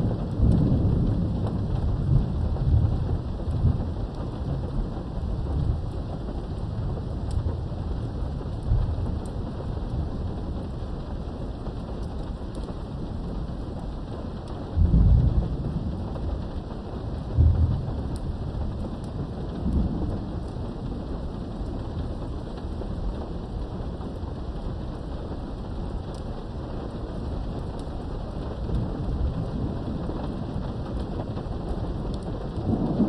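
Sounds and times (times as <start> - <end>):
low thunder rumbles: 0.0 - 33.0
steady rain through a window: 0.0 - 33.0.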